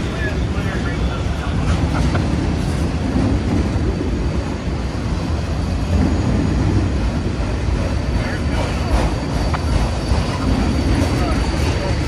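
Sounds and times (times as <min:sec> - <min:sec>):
freight train rumbling on rails: 0:00.0 - 0:12.0.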